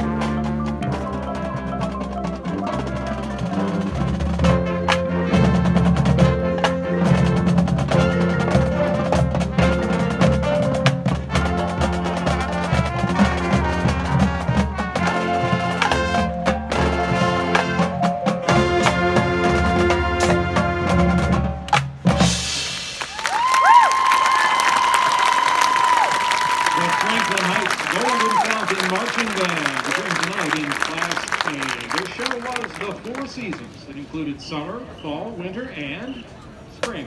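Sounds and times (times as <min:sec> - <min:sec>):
drums and percussion strikes: 0:00.0 - 0:23.8
marching band playing: 0:00.0 - 0:34.1.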